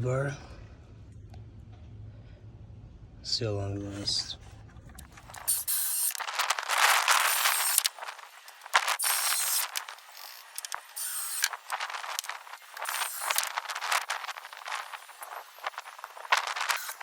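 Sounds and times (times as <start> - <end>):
battery chainsaw whirring: 5.0 - 17.0.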